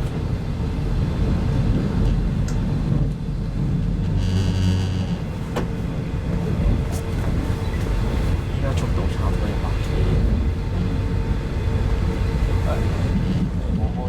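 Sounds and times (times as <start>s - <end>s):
train wheels rolling on track: 5.1s - 14.0s.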